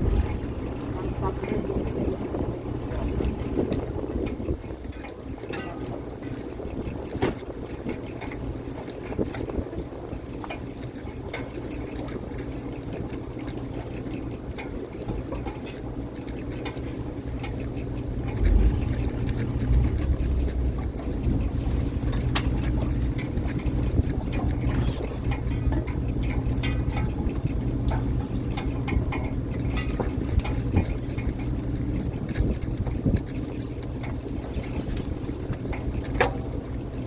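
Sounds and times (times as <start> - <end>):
boat engine running: 0.0 - 37.0
water sloshing: 0.0 - 37.0
knocks and clicks: 18.2 - 28.1.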